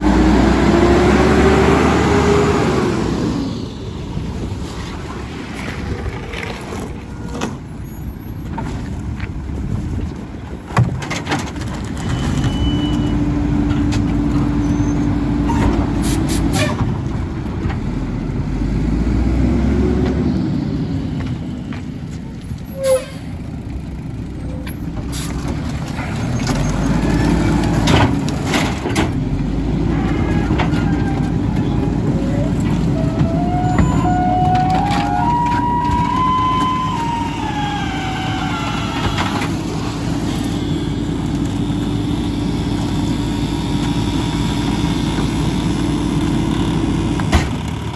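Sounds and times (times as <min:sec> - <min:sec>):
garbage truck diesel engine: 0:00.0 - 0:47.9
trash knocking and clattering: 0:08.4 - 0:18.1, 0:24.7 - 0:40.5
hydraulic whine: 0:29.8 - 0:45.6.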